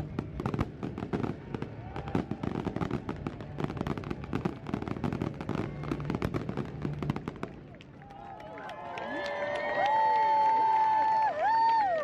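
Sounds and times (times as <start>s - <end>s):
fireworks bangs and crackles: 0.0s - 8.0s.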